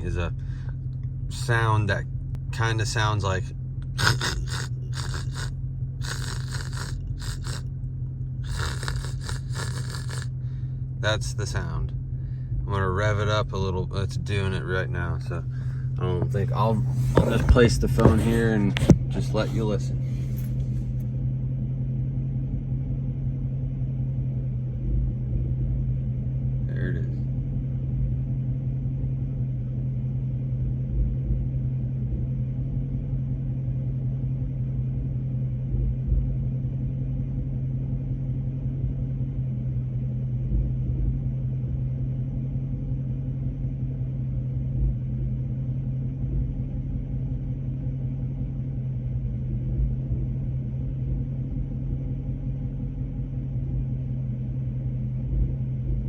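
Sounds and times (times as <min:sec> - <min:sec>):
car engine running with low hum: 0:00.0 - 0:56.0
low engine thump: 0:16.1 - 0:19.4.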